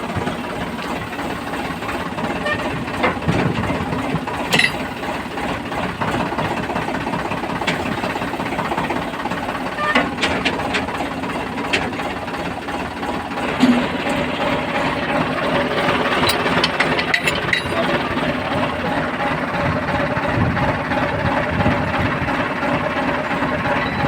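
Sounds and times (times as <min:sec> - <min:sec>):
heavy machinery diesel engine: 0:00.0 - 0:24.0.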